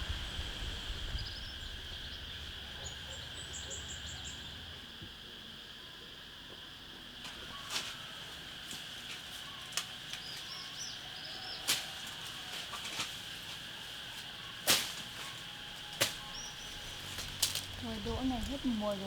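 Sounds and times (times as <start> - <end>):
high-pitched insect drone: 0.0 - 19.0
faint bird chirps: 0.1 - 4.9.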